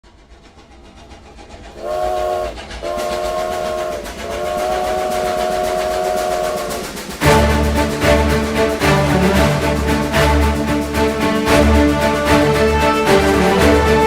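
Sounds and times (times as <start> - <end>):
train chugging clatter: 0.0 - 14.0
train whistle blasts: 1.8 - 8.2.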